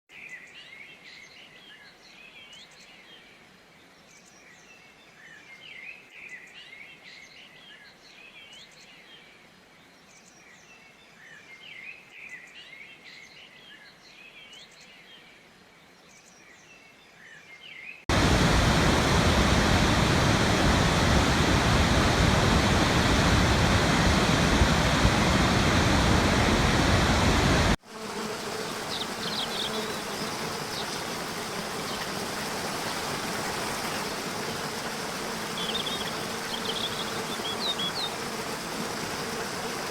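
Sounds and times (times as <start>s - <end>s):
waterfall rushing: 18.1s - 27.8s
running water: 18.1s - 39.9s.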